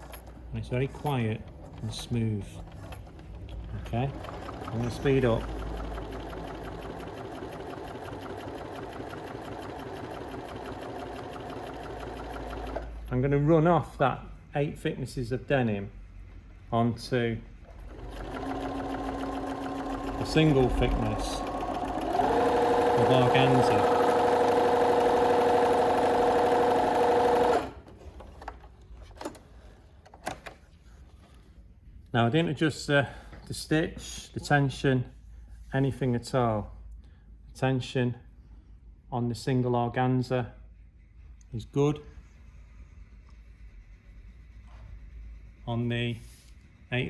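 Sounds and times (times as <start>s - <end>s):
sewing machine stitching: 0.0s - 13.1s, 17.7s - 28.4s.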